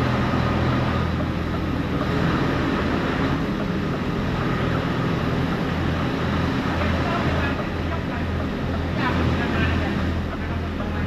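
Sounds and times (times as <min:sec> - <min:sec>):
road and cab noise: 0:00.0 - 0:11.0
truck engine humming: 0:00.0 - 0:11.0.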